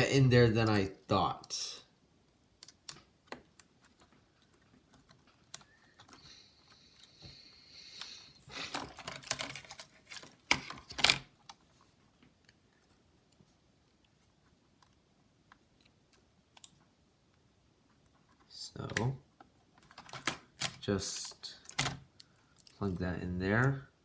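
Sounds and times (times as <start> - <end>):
plastic laptop parts clicking: 2.5 - 7.3, 14.7 - 16.8.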